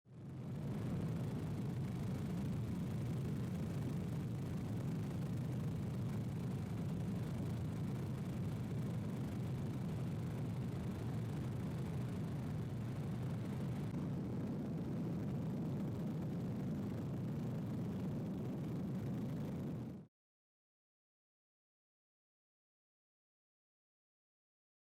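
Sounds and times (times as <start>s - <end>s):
helicopter in flight: 0.1s - 20.0s.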